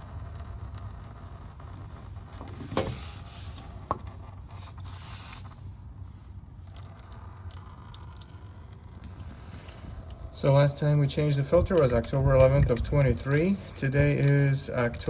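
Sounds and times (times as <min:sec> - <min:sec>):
steady low hum: 0:00.0 - 0:15.0
brief hiss: 0:04.6 - 0:05.5.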